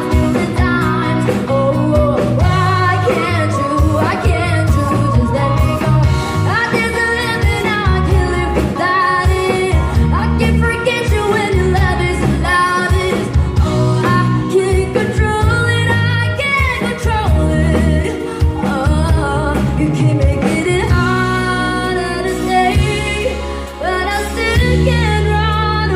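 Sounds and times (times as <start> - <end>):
heavy bass line: 0.0 - 12.6
live band music: 0.0 - 25.9
person singing: 0.0 - 25.9.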